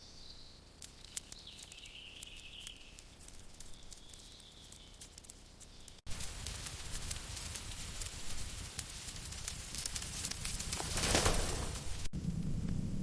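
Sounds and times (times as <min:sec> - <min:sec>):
crackling hiss: 0:00.7 - 0:12.9
small clicks and crackles: 0:00.8 - 0:12.1.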